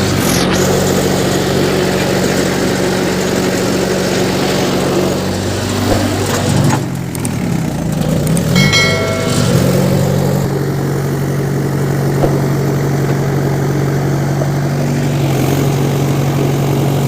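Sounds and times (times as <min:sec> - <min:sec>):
tractor engine idling: 0:00.0 - 0:17.0
high-pitched tone: 0:08.6 - 0:10.1.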